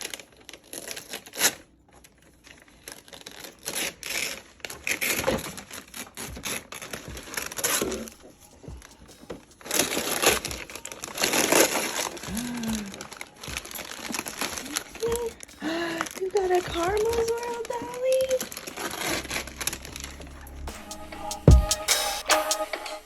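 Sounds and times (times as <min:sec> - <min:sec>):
crinkling and rustling: 0:00.0 - 0:20.3.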